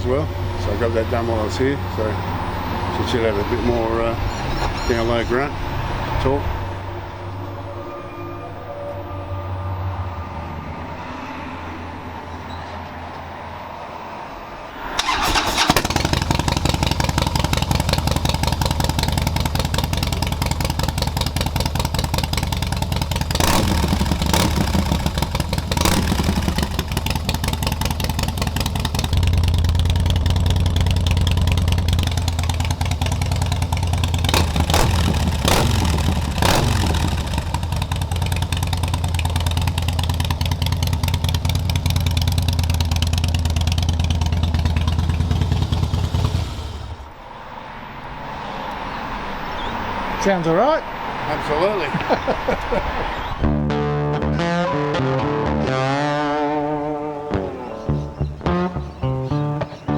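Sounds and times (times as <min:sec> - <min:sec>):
motorcycle engine starting and idling: 0:14.9 - 0:47.1
motorcycle throttle blips: 0:15.0 - 0:47.0.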